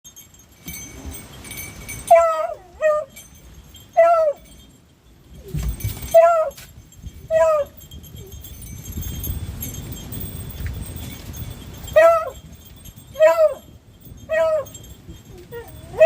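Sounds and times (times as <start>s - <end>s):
dog yelping: 2.1s - 3.2s, 4.0s - 4.5s, 6.0s - 6.6s, 7.3s - 7.8s, 12.0s - 12.4s, 13.2s - 13.7s, 14.3s - 14.8s, 15.5s - 16.0s.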